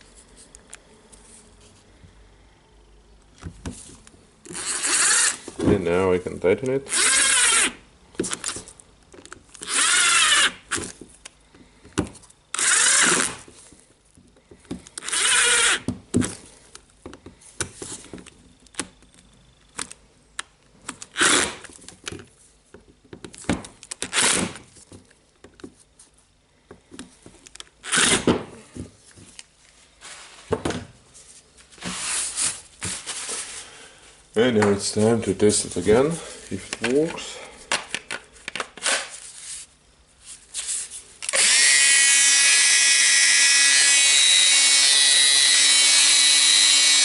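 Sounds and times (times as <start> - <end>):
power screwdriver running: 4.5 - 5.4, 6.9 - 7.8, 9.6 - 10.6, 12.5 - 13.4, 15.0 - 15.9, 41.2 - 47.0.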